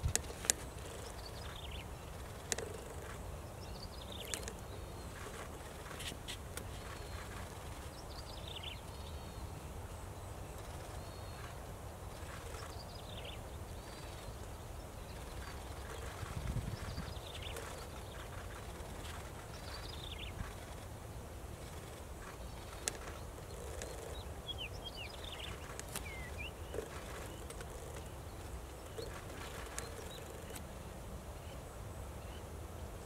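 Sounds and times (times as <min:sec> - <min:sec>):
bird chirps: 0:21.6 - 0:30.6
bird calling: 0:21.7 - 0:28.2.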